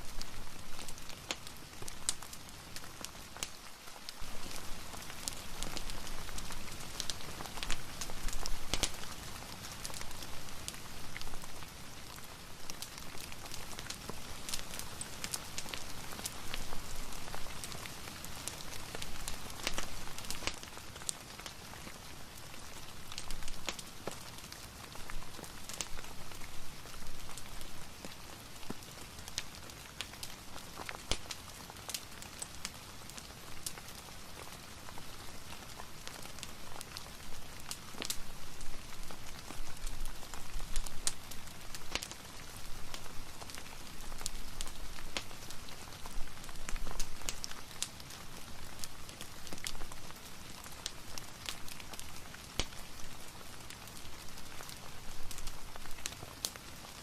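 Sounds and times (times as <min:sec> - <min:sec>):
fireplace fire crackling: 0:00.0 - 0:57.0
steady rain hiss: 0:00.0 - 0:57.0.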